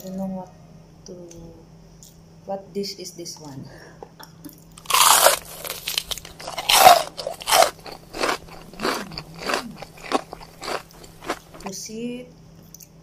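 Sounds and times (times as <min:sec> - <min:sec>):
person chewing crunchy food: 0:04.8 - 0:11.7.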